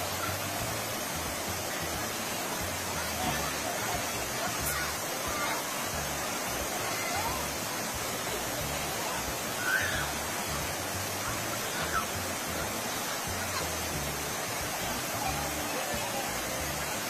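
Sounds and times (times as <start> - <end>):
river rapids rushing: 0.0 - 17.0
faint cries of people: 9.4 - 10.5, 11.3 - 12.5.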